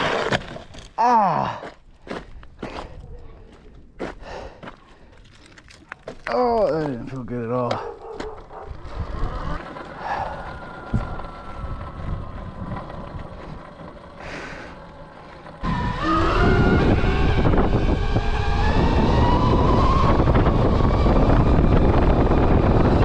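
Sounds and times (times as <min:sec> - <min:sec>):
electric motor whining: 0:07.9 - 0:23.0
wind buffeting microphone: 0:08.4 - 0:14.4, 0:15.4 - 0:23.0.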